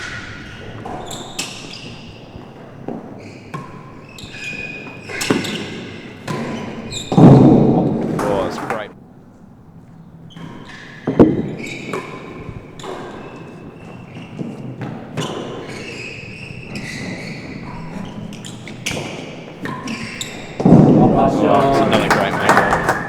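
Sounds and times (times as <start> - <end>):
ball knocking off rackets and walls: 21.2 - 23.0.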